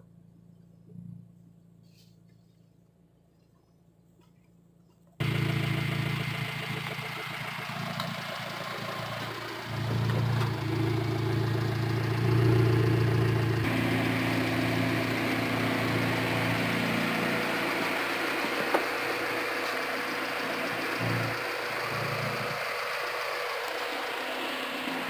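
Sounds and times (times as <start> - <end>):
car engine idling: 5.2 - 25.0.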